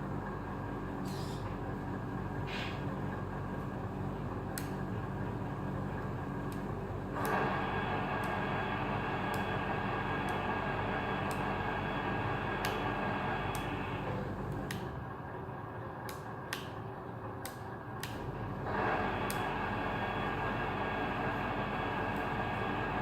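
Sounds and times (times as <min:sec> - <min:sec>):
model truck mechanical hum: 0:00.0 - 0:23.0
sharp clicks: 0:17.4 - 0:18.2.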